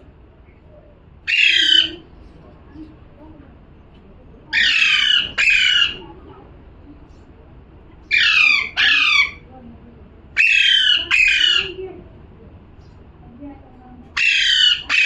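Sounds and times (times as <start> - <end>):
parrot squawking: 1.3 - 2.0, 4.5 - 6.1, 8.1 - 9.5, 10.4 - 11.8, 14.2 - 15.0.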